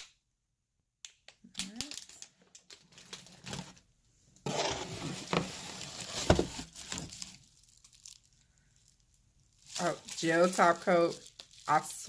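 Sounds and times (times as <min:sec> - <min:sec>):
packaging rustling: 0:01.8 - 0:03.9, 0:04.5 - 0:12.0.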